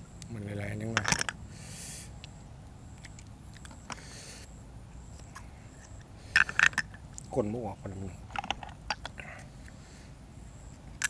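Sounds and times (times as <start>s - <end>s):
biting and chewing clicks: 2.2s - 4.0s.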